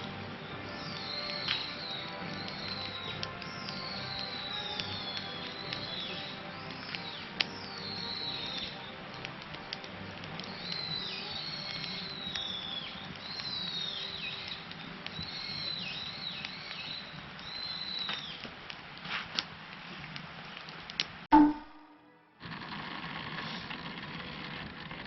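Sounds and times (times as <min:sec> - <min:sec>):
campfire crackling and popping: 0:00.0 - 0:21.8, 0:22.4 - 0:25.0
high falling whistles: 0:15.2 - 0:18.4, 0:21.3 - 0:22.1.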